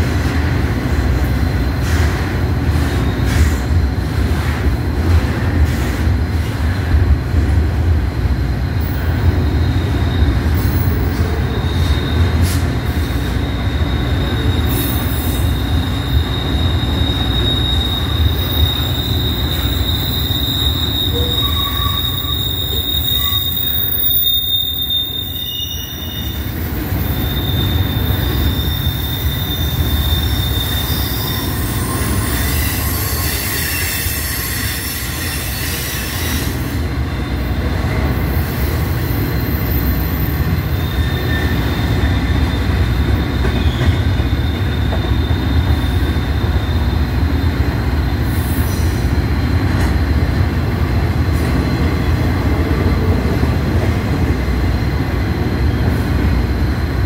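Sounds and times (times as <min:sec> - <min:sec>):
train wheels rumbling on rail: 0:00.0 - 0:57.0
high wheel squeal: 0:09.4 - 0:37.5, 0:38.2 - 0:49.2.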